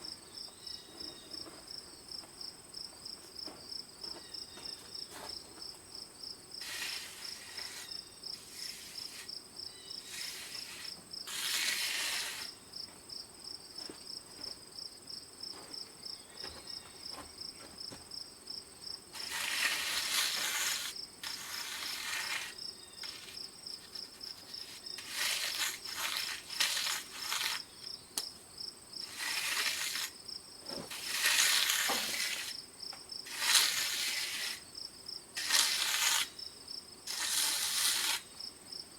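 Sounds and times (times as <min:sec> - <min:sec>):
cricket chirping: 0:00.0 - 0:11.3, 0:12.4 - 0:37.4
rough noisy strokes: 0:06.6 - 0:09.3, 0:10.0 - 0:12.6, 0:19.2 - 0:27.7, 0:29.0 - 0:30.2, 0:30.8 - 0:32.6, 0:33.3 - 0:34.6, 0:37.1 - 0:38.3.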